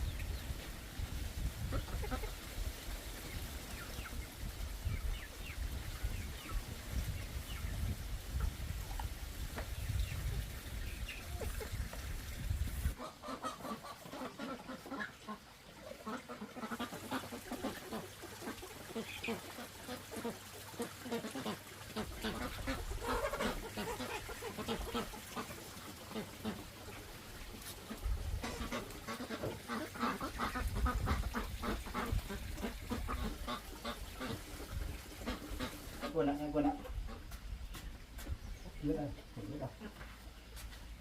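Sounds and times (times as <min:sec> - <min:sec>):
ducks or geese calling: 0:01.6 - 0:02.6, 0:12.8 - 0:40.5
poultry calling: 0:12.9 - 0:19.6, 0:21.0 - 0:27.0.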